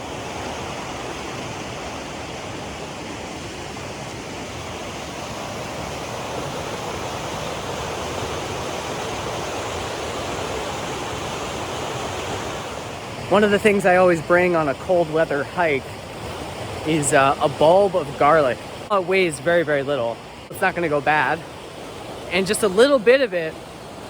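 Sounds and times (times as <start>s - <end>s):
flowing water rushing: 0.0s - 24.0s.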